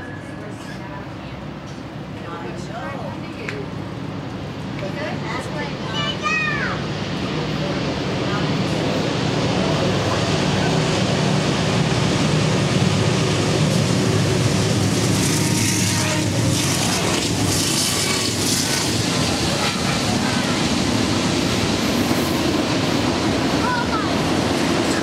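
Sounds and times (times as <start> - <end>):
diesel train engine rumbling: 0.0 - 25.0
wheels hissing on rail: 5.2 - 25.0.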